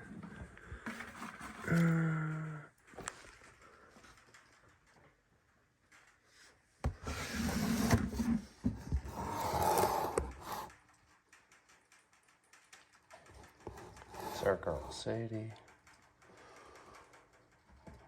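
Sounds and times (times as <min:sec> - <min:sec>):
enclosure door sliding and scraping: 0:07.0 - 0:10.7.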